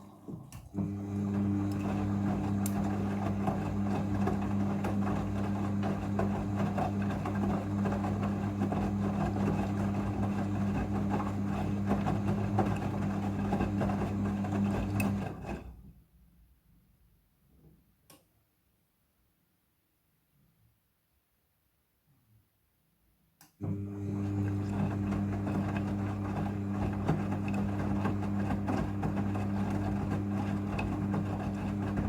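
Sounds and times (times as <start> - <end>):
washing machine motor hum: 0.0 - 15.7, 23.6 - 32.0.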